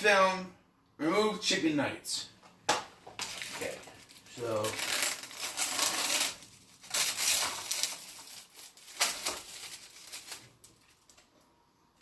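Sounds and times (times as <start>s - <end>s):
plastic film crinkling: 3.2s - 11.4s.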